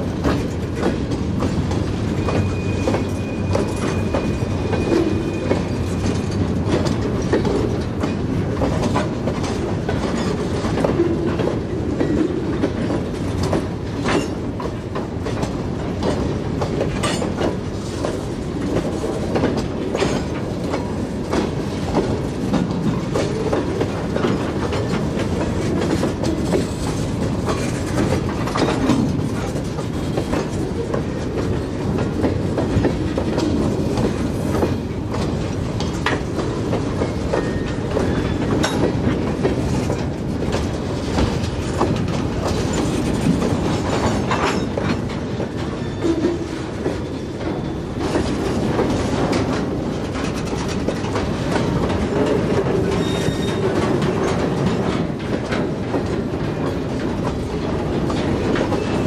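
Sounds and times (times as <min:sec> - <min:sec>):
train wheels clickety-clack: 0:00.0 - 0:59.0.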